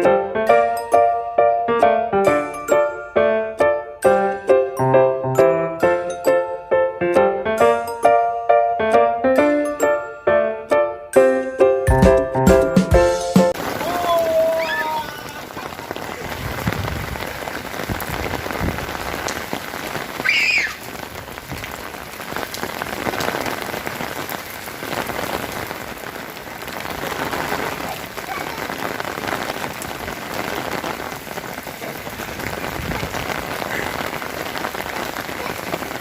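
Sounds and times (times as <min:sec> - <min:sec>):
rain falling: 0:00.0 - 0:08.3, 0:11.9 - 0:36.0
child squealing: 0:13.8 - 0:15.5, 0:20.1 - 0:20.9, 0:27.6 - 0:28.8.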